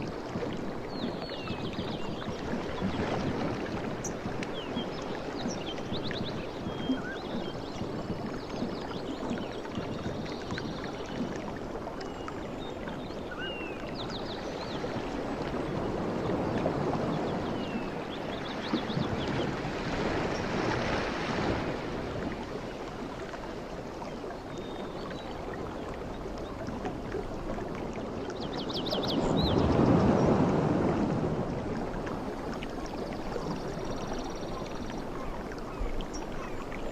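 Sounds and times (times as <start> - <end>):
ocean waves washing in: 14.4 - 24.3, 24.9 - 36.9.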